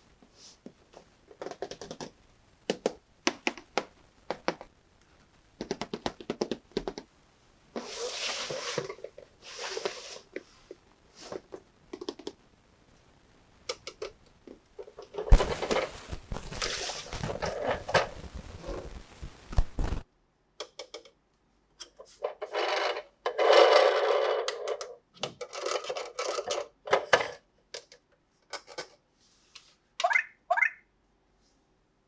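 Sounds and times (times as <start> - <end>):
plastic packaging crinkling: 15.3 - 20.0
short rustles: 15.3 - 20.0.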